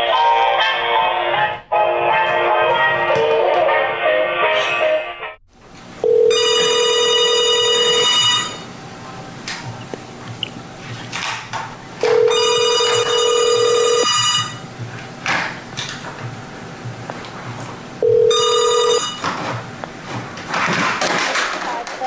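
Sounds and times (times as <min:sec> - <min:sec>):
telephone ringing: 0:06.0 - 0:08.7, 0:12.0 - 0:14.6, 0:18.0 - 0:19.4.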